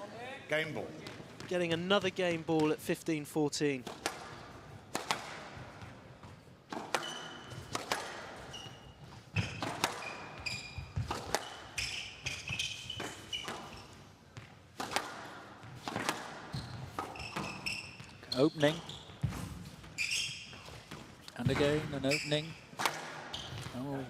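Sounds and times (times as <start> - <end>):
squash ball cracking off rackets: 3.8 - 5.9, 6.7 - 8.4, 9.3 - 10.4, 11.0 - 13.7, 14.4 - 18.1
shoes squeaking on wooden floor: 8.4 - 14.0, 16.5 - 24.0.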